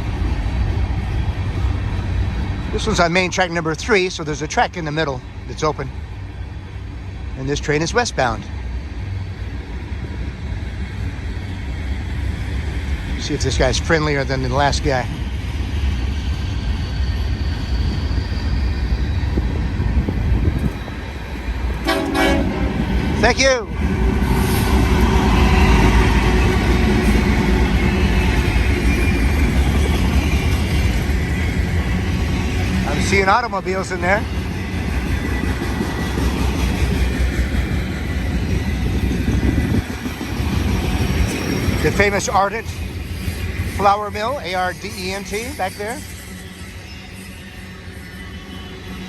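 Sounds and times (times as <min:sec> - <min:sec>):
train wheels rumbling on rails: 0:00.0 - 0:49.0
locomotive horn toot: 0:21.8 - 0:22.9.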